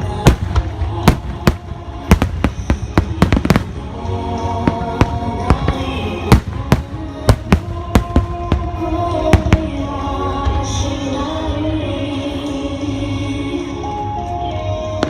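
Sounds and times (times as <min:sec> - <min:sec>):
music with long held notes: 0:00.0 - 0:15.0
fireworks bangs: 0:00.1 - 0:09.8.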